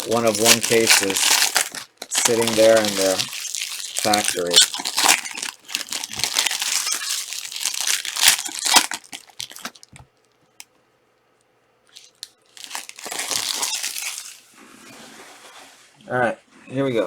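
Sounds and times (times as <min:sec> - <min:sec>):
plastic wrapping crinkling: 0:00.0 - 0:10.7, 0:11.9 - 0:14.7.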